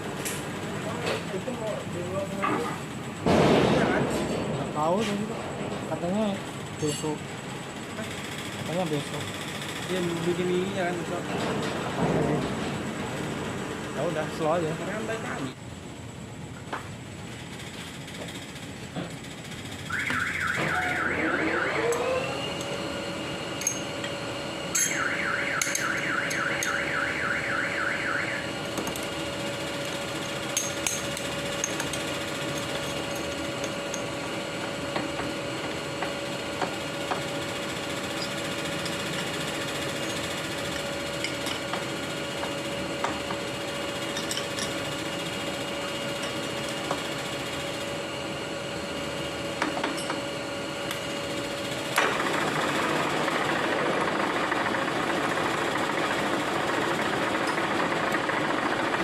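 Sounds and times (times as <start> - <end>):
milling machine motor whine: 4.6 - 15.6, 17.8 - 59.0
fast warbling high tone: 19.9 - 22.6.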